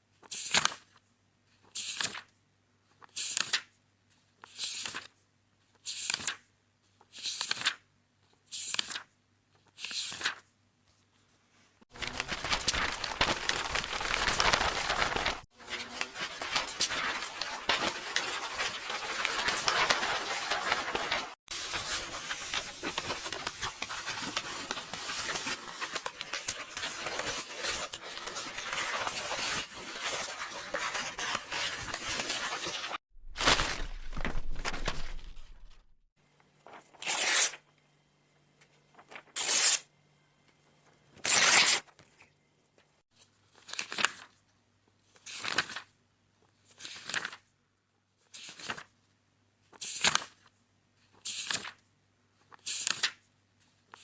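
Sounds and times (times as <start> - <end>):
book pages turning: 0.2 - 1.0, 1.6 - 2.3, 2.9 - 3.7, 4.4 - 5.2, 5.8 - 11.4, 12.0 - 35.9, 36.6 - 37.6, 38.8 - 39.8, 43.5 - 44.4, 45.1 - 45.9, 46.6 - 47.5, 48.3 - 49.0, 49.7 - 51.8, 52.4 - 54.0
paper tearing and rustling: 11.9 - 35.8, 36.7 - 37.6, 39.0 - 39.8, 41.2 - 41.8.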